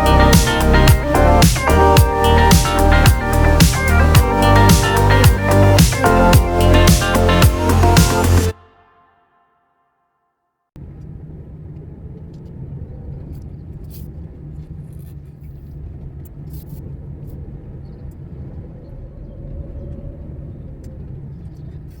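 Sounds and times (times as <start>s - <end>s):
car engine and road noise: 0.0s - 8.5s.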